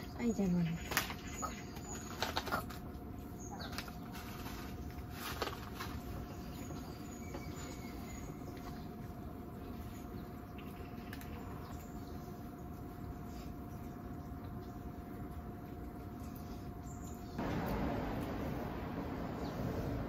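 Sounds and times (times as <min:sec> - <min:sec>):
faint steady hum: 0:00.0 - 0:20.0
rain hissing on a tent: 0:17.4 - 0:20.0.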